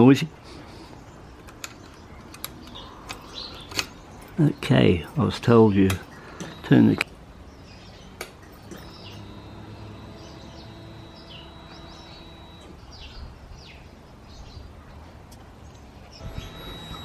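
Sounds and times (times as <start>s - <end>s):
small birds chirping: 0.0s - 14.7s, 15.6s - 17.0s
faint steady hum: 6.0s - 7.2s, 8.1s - 12.8s, 16.2s - 17.0s.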